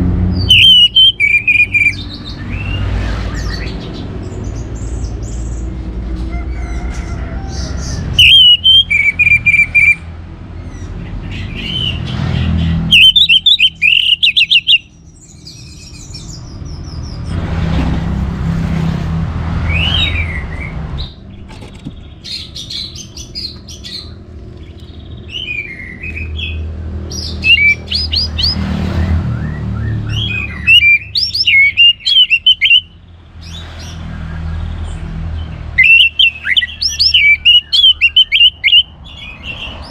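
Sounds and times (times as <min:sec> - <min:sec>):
thrush whistled song: 0:00.3 - 0:03.8, 0:08.2 - 0:10.0, 0:12.9 - 0:15.0, 0:27.2 - 0:33.0, 0:35.8 - 0:39.9.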